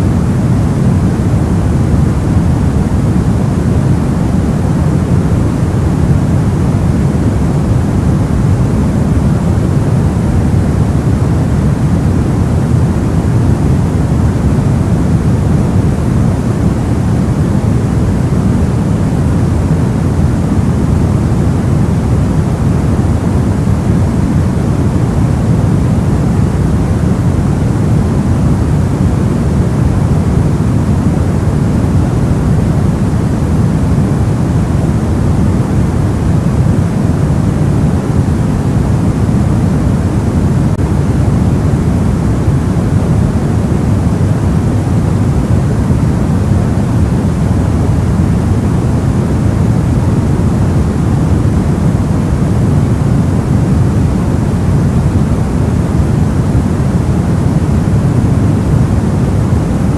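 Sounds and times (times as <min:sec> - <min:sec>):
deep white noise: 0:00.0 - 0:59.9.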